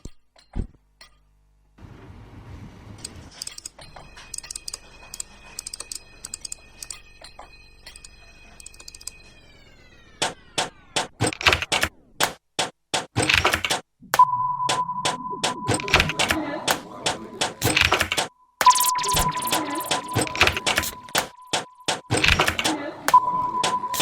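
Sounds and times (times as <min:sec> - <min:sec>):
keyboard typing clicks: 0:03.4 - 0:09.2, 0:10.2 - 0:24.0
sharp percussive hits: 0:10.2 - 0:24.0.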